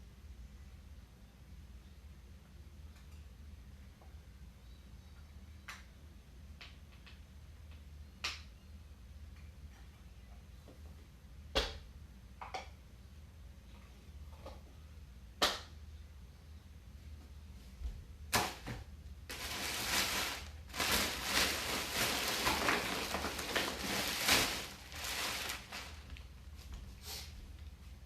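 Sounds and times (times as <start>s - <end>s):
plastic packaging clicks: 19.3s - 26.3s
plastic packaging crinkling: 19.3s - 26.3s.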